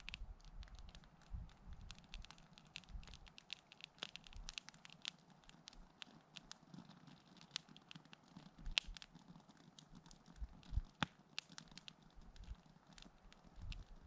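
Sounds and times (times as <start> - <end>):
sharp fire pops: 0.0 - 6.6, 7.3 - 9.2, 9.8 - 14.0
campfire crackling: 0.0 - 14.0.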